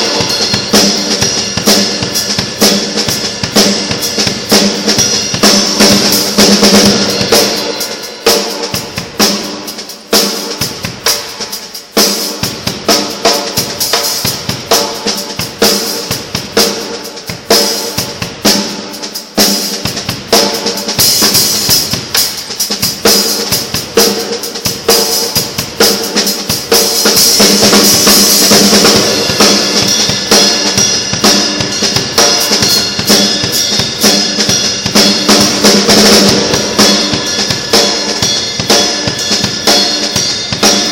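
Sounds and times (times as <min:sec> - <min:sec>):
bass drum: 0:00.0 - 0:07.9, 0:22.8 - 0:40.9
cymbals ringing: 0:00.0 - 0:19.0, 0:23.2 - 0:40.9
snare drum: 0:00.0 - 0:40.9.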